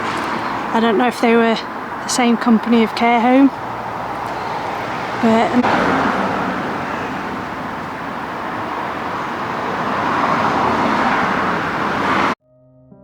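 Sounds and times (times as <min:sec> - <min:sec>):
road traffic hiss: 0:00.0 - 0:12.4
soft piano music: 0:12.4 - 0:13.0.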